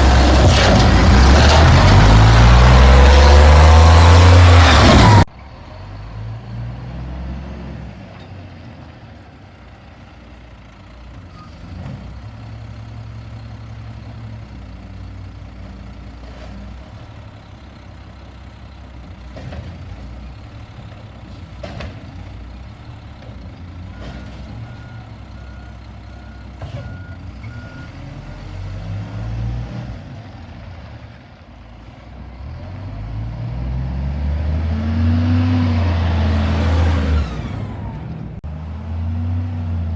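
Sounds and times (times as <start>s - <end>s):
garbage truck diesel engine: 0.0s - 39.9s
reversing beeps: 23.9s - 28.0s.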